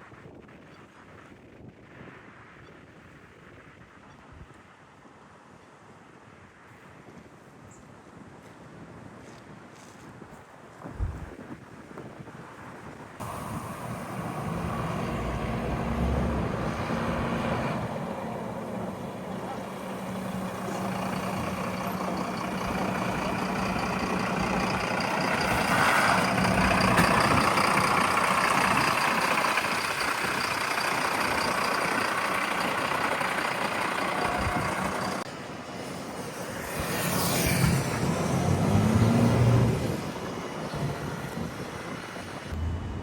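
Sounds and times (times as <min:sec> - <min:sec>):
fire truck engines running: 0:13.2 - 0:36.4, 0:37.6 - 0:43.0
truck moving close by: 0:13.2 - 0:43.0.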